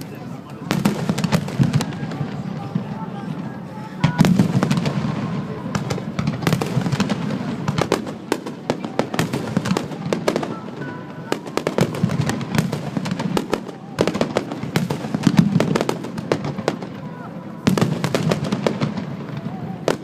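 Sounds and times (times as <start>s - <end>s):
fireworks bursting and crackling: 0.0s - 20.0s.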